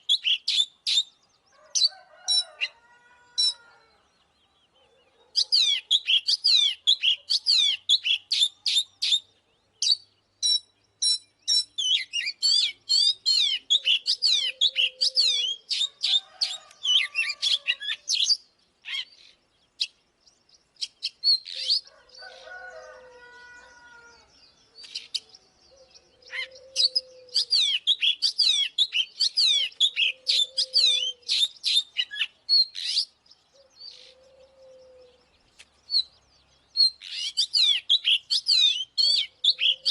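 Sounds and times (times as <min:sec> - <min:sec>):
bird singing chirps and trills: 0:00.0 - 0:39.9
lower bird calls: 0:00.0 - 0:39.9.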